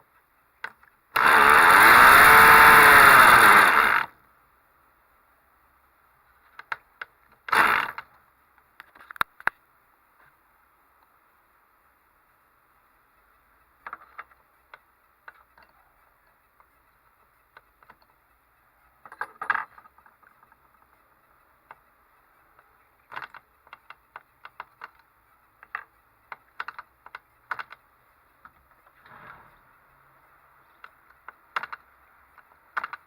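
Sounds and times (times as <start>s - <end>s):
short clattering burst: 29.0s - 29.7s.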